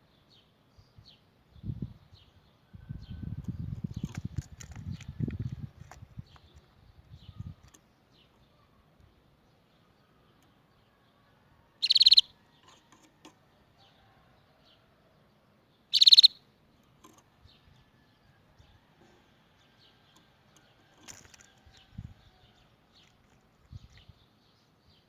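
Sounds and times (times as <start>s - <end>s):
faint bird chirps: 6.4s - 13.1s, 15.8s - 22.6s
canary trilling: 11.8s - 13.0s, 15.9s - 16.4s.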